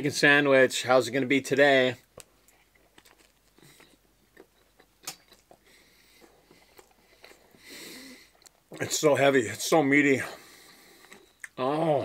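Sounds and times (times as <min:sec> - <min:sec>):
faint chewing: 0:02.0 - 0:09.0, 0:10.4 - 0:11.6
soft mouth clicks: 0:02.4 - 0:05.6, 0:08.3 - 0:08.6, 0:11.0 - 0:11.6.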